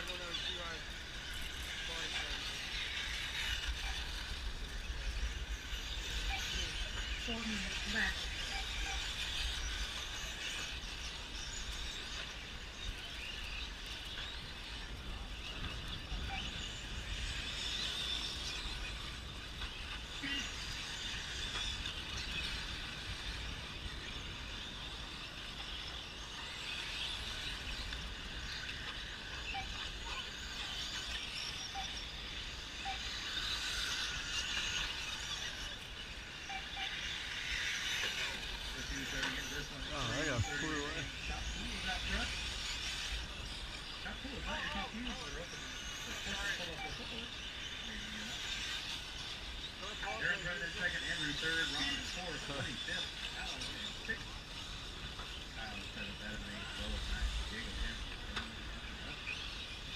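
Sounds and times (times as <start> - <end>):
rc cars motors whining: 0.0 - 59.9.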